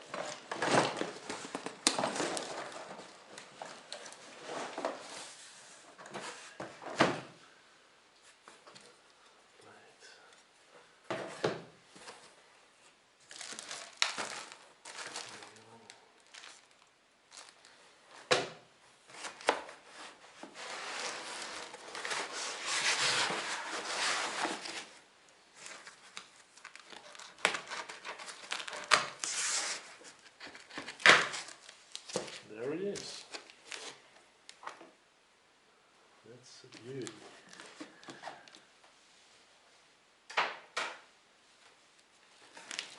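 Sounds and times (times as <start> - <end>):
packaging crinkling and tearing: 13.2 - 17.8, 25.6 - 34.7, 42.4 - 42.9.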